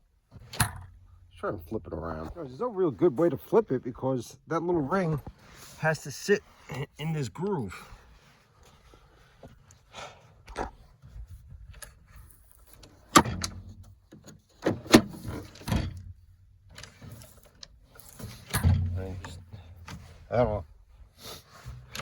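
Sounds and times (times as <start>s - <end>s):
metal tailgate clanks and knocks: 0.5s - 1.1s, 13.1s - 13.8s, 18.5s - 20.0s.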